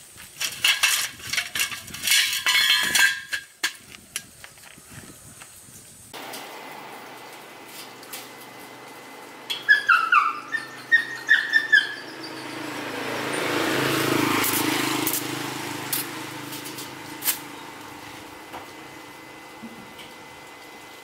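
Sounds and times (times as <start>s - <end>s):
bird chirping: 9.5s - 12.7s
vehicle passing by: 10.4s - 18.4s.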